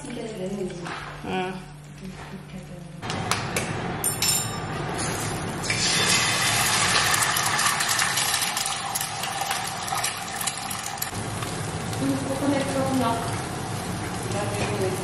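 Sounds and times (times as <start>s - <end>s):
food sizzling in hot oil: 5.0s - 15.0s.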